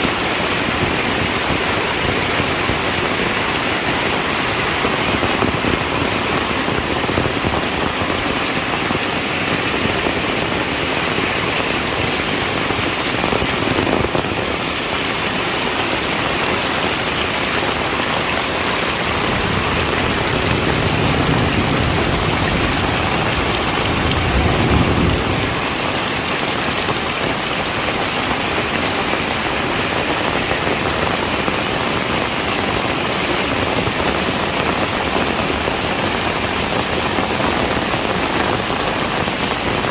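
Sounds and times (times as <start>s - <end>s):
heavy rain: 0.0s - 39.9s
low rumble: 19.0s - 26.3s.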